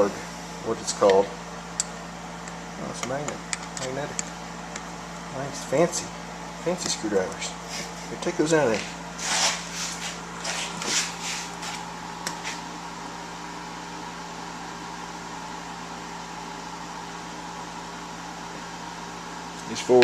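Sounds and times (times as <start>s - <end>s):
air conditioner humming: 0.0s - 20.0s
hand tools scraping: 8.8s - 11.8s.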